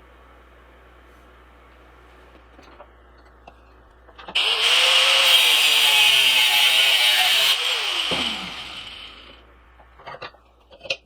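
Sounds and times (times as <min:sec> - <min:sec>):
electric grinder grinding steel: 0:04.4 - 0:09.4.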